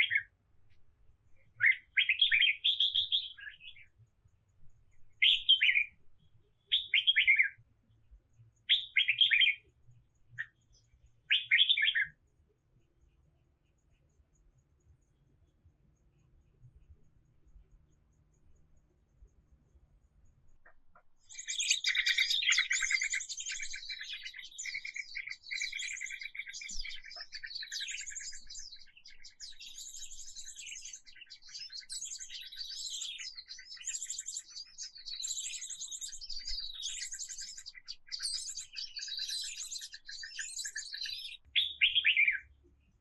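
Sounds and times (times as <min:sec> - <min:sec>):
songbird singing: 0:00.0 - 0:43.0.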